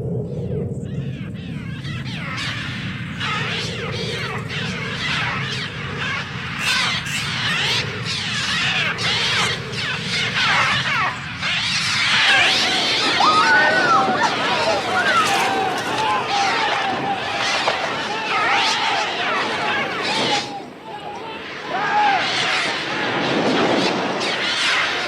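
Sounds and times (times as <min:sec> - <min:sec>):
steady low rumble: 0:00.0 - 0:20.8
flock of birds calling: 0:00.0 - 0:25.0.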